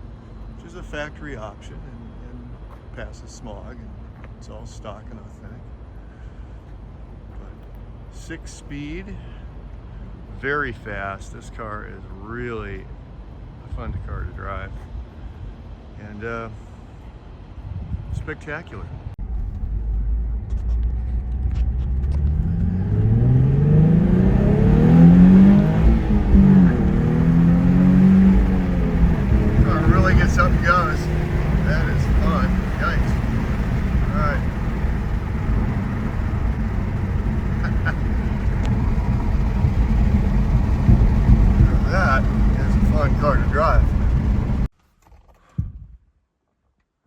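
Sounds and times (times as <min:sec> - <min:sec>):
car engine accelerating: 0:19.2 - 0:44.7.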